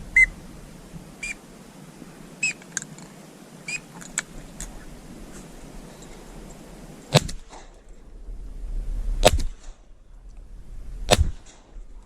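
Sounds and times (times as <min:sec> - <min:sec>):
shotgun shots: 0:07.1 - 0:07.7, 0:09.2 - 0:09.8, 0:11.1 - 0:11.7.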